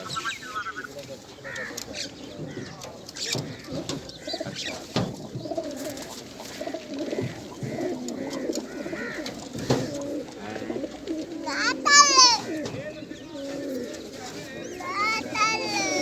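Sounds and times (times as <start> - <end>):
higher chirps: 0.0 - 1.0
pigeons cooing: 0.0 - 16.0.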